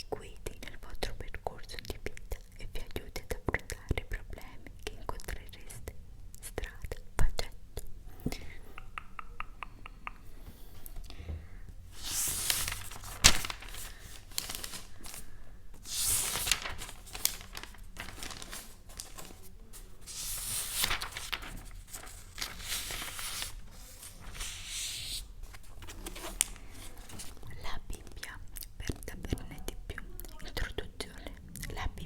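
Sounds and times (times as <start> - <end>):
crinkly material rustling: 11.9 - 28.2.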